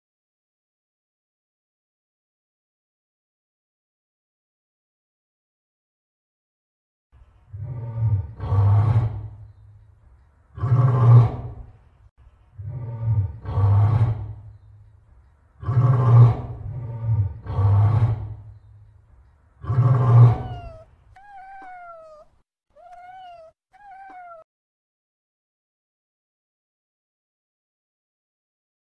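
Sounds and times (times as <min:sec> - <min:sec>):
rough growling roars: 0:07.3 - 0:09.8, 0:10.5 - 0:11.8, 0:12.5 - 0:14.8, 0:15.5 - 0:18.9, 0:19.6 - 0:20.8
cat meows: 0:20.3 - 0:24.5.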